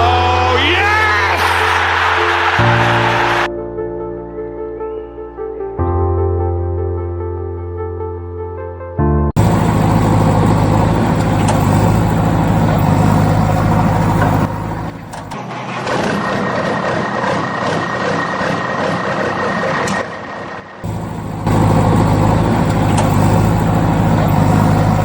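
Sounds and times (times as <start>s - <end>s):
tractor engine running: 9.4s - 25.0s.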